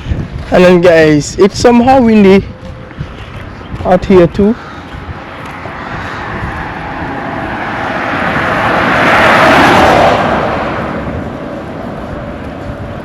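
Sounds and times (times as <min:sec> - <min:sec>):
wind rumbling on microphone: 0:00.0 - 0:13.0
vehicle passing by: 0:04.3 - 0:13.0.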